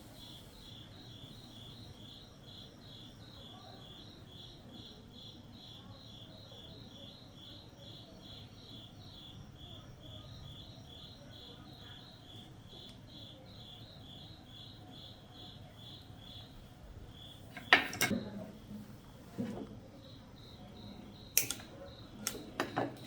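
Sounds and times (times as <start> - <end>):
insect chirping: 0.0 - 23.0.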